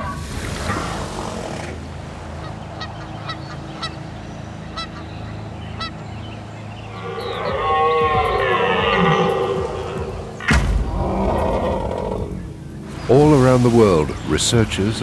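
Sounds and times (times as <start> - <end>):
honk-like animal calls: 6.9 - 12.6.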